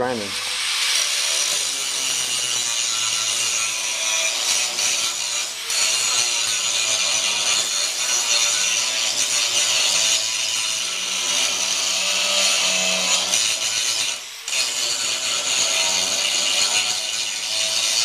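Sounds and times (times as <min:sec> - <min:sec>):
angle grinder grinding steel: 0:00.0 - 0:18.0.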